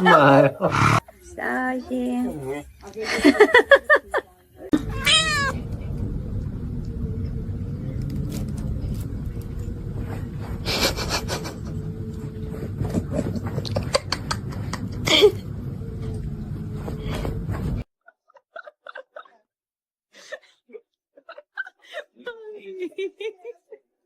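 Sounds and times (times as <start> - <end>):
faint steady hum: 0.8 - 17.8
pet crying: 4.8 - 5.6
steady low noise: 4.8 - 17.8.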